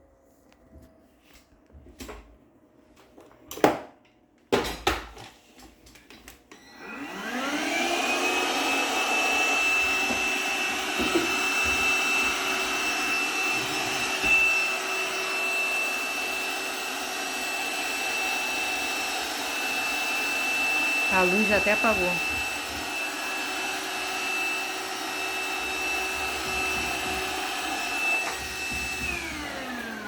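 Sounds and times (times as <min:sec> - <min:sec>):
vacuum cleaner whining: 0:06.5 - 0:30.0.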